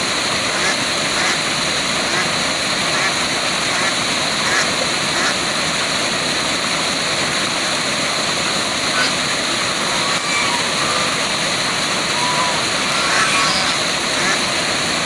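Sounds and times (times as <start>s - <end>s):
waterfall rushing: 0.0s - 15.0s
faint high-pitched sounds: 12.0s - 13.9s.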